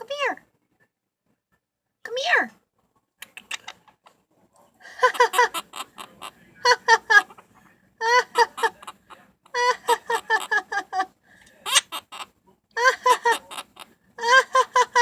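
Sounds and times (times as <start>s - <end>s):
parrot imitating laughter: 5.0s - 11.1s, 11.7s - 15.0s.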